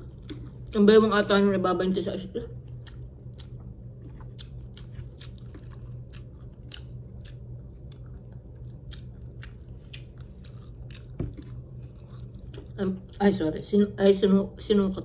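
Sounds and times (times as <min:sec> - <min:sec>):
person chewing food: 0:00.0 - 0:00.8, 0:02.6 - 0:13.2
steady low hum: 0:00.0 - 0:15.0.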